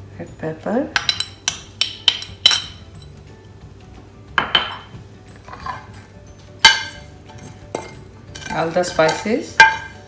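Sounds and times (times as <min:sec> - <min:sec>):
utensil clinking against dish: 0:01.0 - 0:03.1, 0:04.4 - 0:10.0
utensil scraping clatter: 0:05.4 - 0:10.0.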